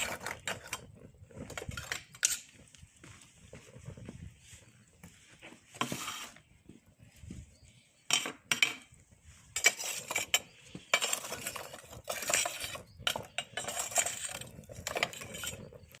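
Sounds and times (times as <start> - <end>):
charcoal lumps clinking on grill: 9.6 - 16.0.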